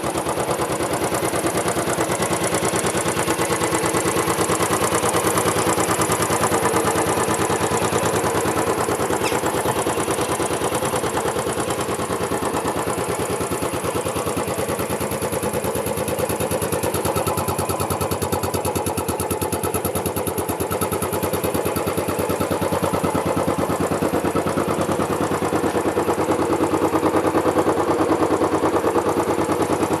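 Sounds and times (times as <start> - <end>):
motorcycle engine idling: 0.0 - 30.0.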